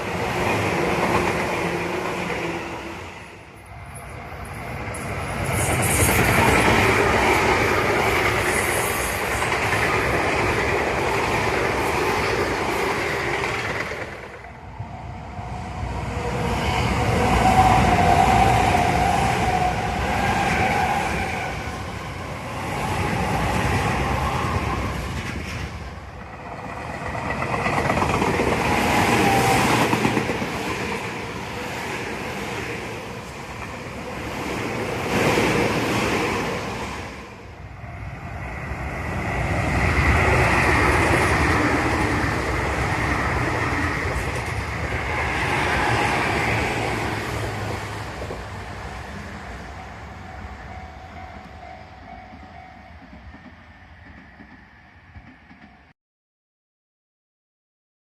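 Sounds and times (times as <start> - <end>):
train wheels clattering on rails: 5.0 - 14.6, 25.0 - 31.3.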